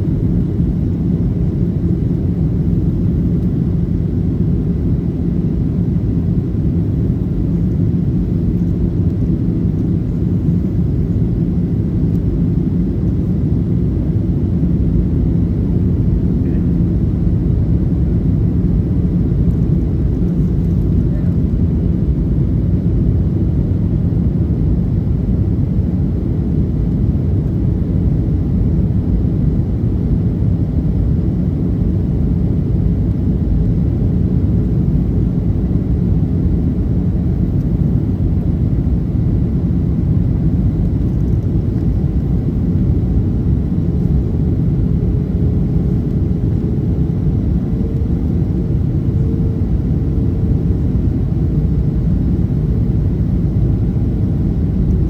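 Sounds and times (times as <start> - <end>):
aircraft engines and airflow rumble: 0.0 - 55.0
faint steady hum: 0.0 - 55.0.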